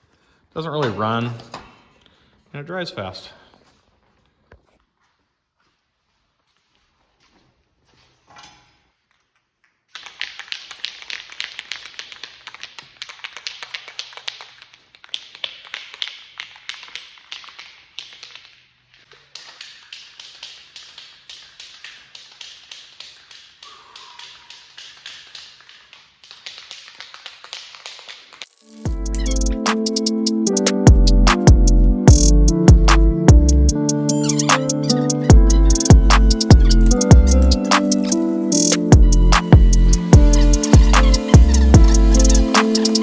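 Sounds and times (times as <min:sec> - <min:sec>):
spray can being shaken: 0:09.9 - 0:30.8, 0:33.7 - 0:43.0.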